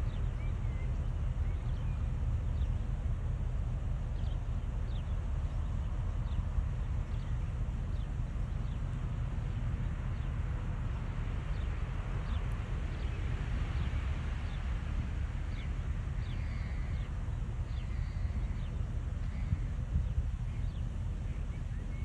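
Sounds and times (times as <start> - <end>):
steady low rumble: 0.0 - 22.0
small birds chirping: 15.5 - 22.0.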